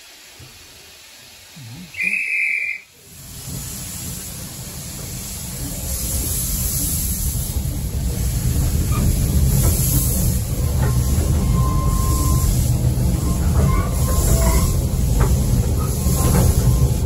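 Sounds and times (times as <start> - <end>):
guard's whistle blast: 2.0 - 2.8
train carriage rumbling on rails: 3.0 - 17.0.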